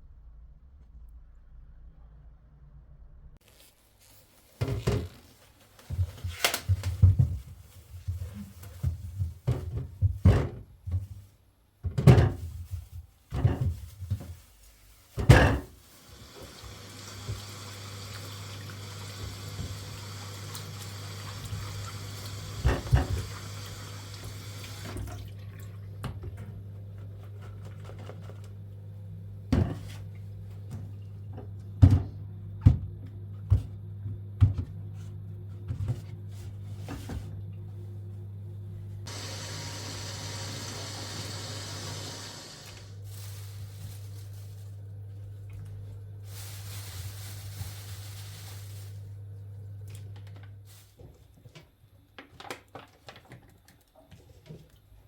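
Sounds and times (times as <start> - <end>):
tap running into sink: 16.4 - 25.2
steady low hum: 28.4 - 39.3.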